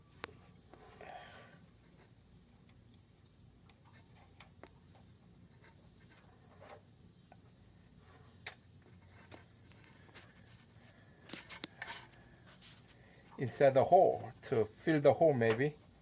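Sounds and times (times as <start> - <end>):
clicks and scratches of thin wire: 3.6 - 13.4.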